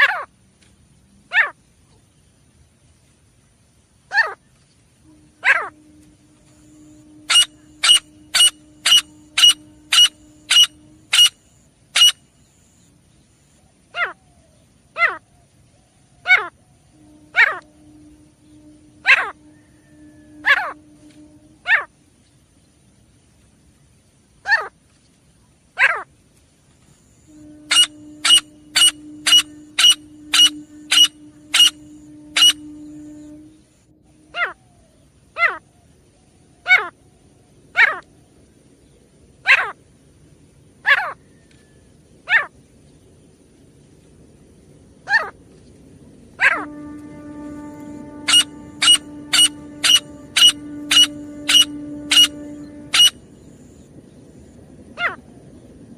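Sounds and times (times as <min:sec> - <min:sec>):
low hum: 0:00.5 - 0:13.8, 0:15.8 - 0:23.9, 0:26.7 - 0:36.5, 0:43.6 - 0:55.9
bird calling sharp notes: 0:05.1 - 0:11.4, 0:12.0 - 0:12.2, 0:17.0 - 0:21.9, 0:27.3 - 0:34.7, 0:46.4 - 0:53.4.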